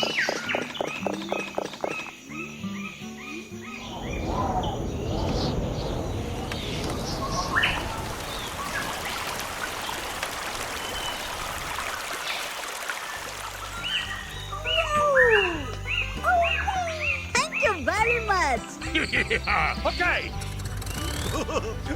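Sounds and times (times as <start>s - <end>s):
birds chirping: 0.0s - 21.4s
steady rushing noise: 3.9s - 9.0s.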